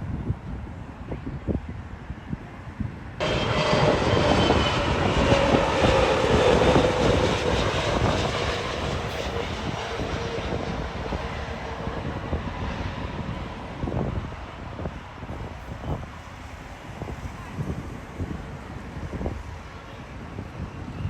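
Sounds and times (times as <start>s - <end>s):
jet engines passing by: 3.1s - 21.0s.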